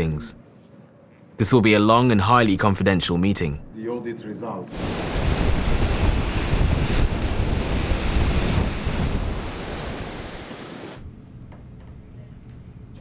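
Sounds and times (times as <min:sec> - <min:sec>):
sea waves: 0:04.7 - 0:11.0
wind rushing: 0:04.7 - 0:11.0.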